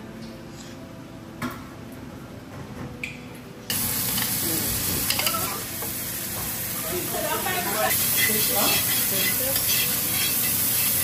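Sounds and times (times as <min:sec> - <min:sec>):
food sizzling in hot pan: 0:03.7 - 0:11.0.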